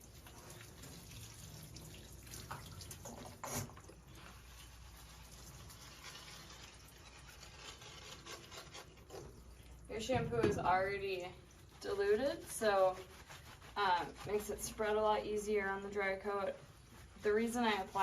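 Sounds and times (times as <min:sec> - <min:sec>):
water trickling and dripping: 0:00.0 - 0:07.6, 0:09.1 - 0:14.4.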